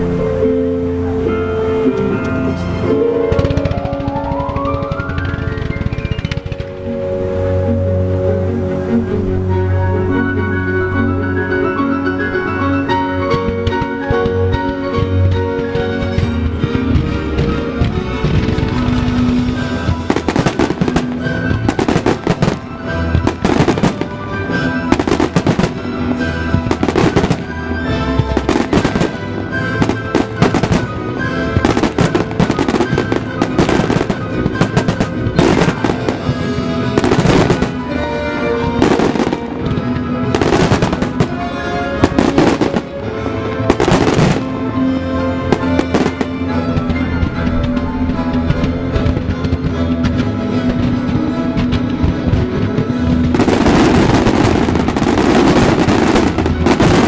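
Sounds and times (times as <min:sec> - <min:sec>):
loud music: 0:00.0 - 0:57.0
fireworks bursting: 0:02.2 - 0:07.2, 0:13.3 - 0:57.0.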